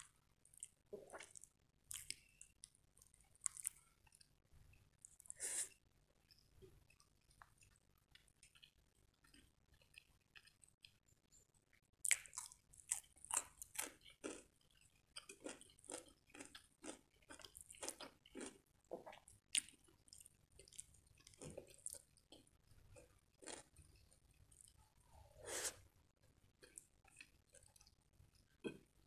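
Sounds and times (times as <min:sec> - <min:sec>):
biting and chewing cucumber: 0:12.0 - 0:23.9.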